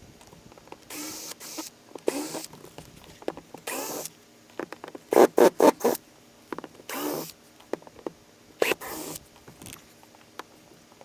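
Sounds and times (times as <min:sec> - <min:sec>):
cordless drill bursts: 0:00.9 - 0:02.5, 0:03.7 - 0:04.1, 0:06.9 - 0:07.3, 0:08.6 - 0:09.2.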